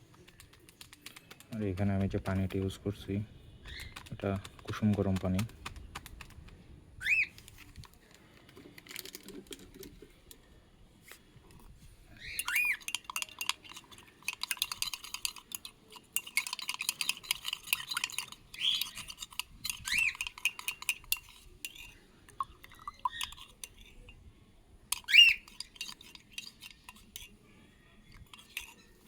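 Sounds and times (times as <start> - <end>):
cockatiels chirping: 3.6 - 4.6, 7.0 - 7.4, 12.2 - 12.8, 18.6 - 19.1, 19.8 - 20.2, 25.1 - 25.5
spoon clinking against glass: 12.2 - 24.2, 24.9 - 27.4, 28.0 - 29.0.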